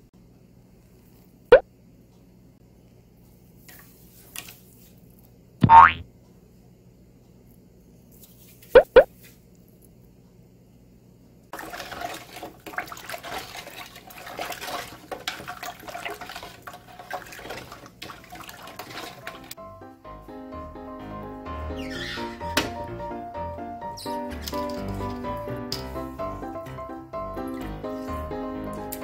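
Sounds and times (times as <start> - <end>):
quick blips: 5.6 - 6.0, 8.8 - 9.1
hand sloshing water in pot: 11.6 - 19.6
background music: 19.6 - 29.0.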